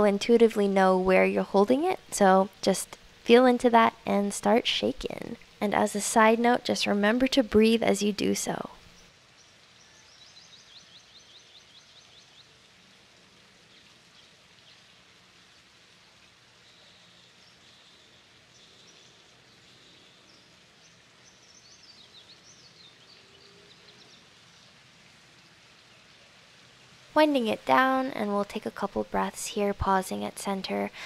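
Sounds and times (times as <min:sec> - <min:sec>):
low steady hiss: 0:00.0 - 0:31.0
small birds chirping: 0:06.4 - 0:12.6, 0:16.5 - 0:26.3.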